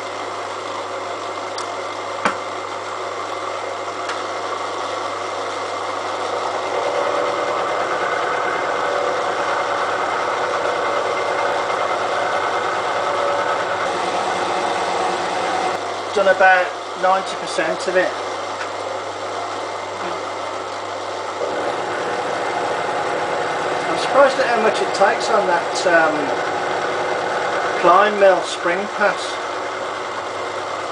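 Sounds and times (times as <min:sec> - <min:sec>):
milling machine cutting steel: 0:05.9 - 0:15.9, 0:21.4 - 0:30.4.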